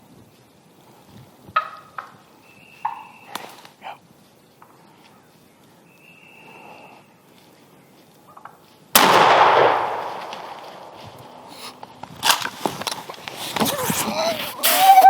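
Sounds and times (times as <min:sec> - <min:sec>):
shotgun blast with echo: 0:09.0 - 0:11.0.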